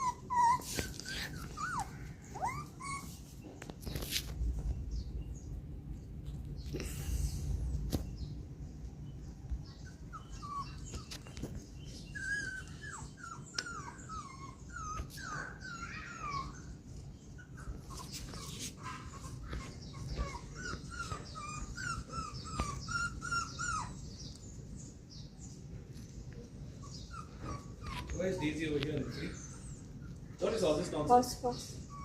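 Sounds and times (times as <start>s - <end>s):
puppy whimpering: 0.0s - 3.6s, 9.8s - 24.9s, 26.6s - 32.0s.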